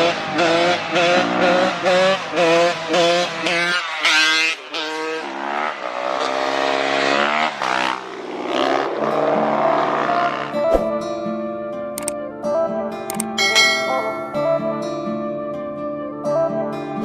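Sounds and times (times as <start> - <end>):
dirt bike engines revving: 0.0 - 10.6.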